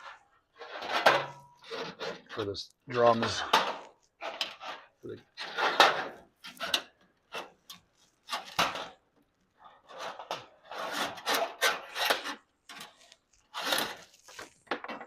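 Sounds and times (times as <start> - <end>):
hand tool scraping metal: 0.0 - 2.5, 9.8 - 14.4.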